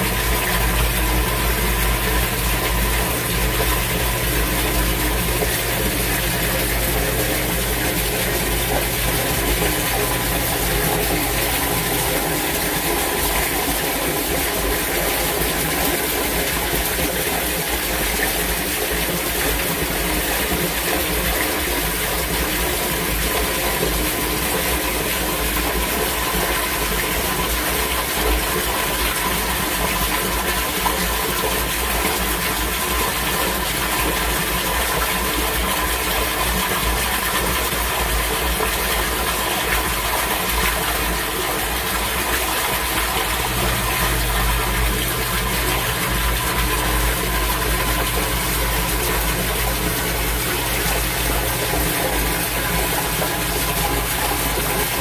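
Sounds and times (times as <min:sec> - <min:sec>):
heavy rain: 0:00.0 - 0:22.7, 0:40.7 - 0:55.0
mechanical hum: 0:00.0 - 0:55.0
water rushing through drain: 0:00.0 - 0:55.0.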